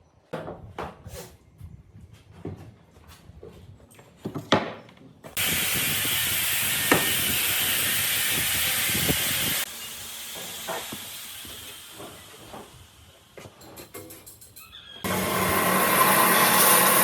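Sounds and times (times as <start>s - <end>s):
compressed air hissing: 5.4s - 13.2s.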